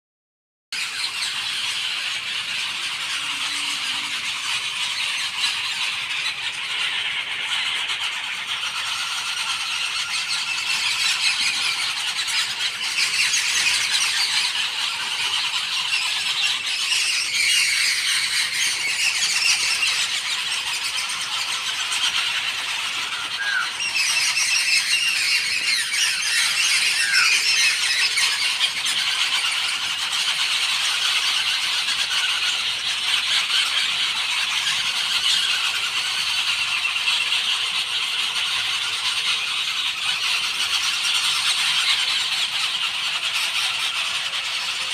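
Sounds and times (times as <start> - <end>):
chorus of birdsong: 0.7 - 44.9
short rising bird calls: 0.8 - 8.9, 15.8 - 28.7.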